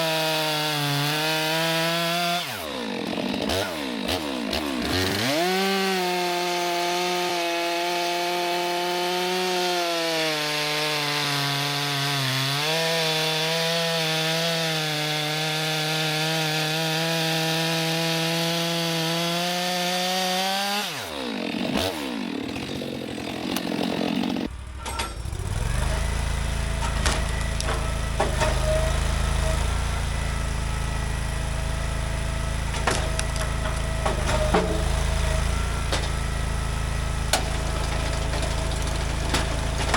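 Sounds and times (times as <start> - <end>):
chainsaw cutting log: 0.0 - 24.5, 25.2 - 39.9
chainsaw idling: 0.1 - 9.7, 14.3 - 39.9
wood knocks: 32.7 - 35.0.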